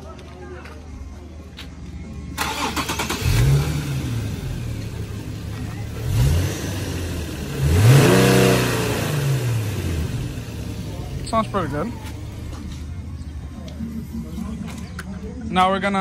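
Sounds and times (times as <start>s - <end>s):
car engine starting and revving: 2.4s - 13.2s.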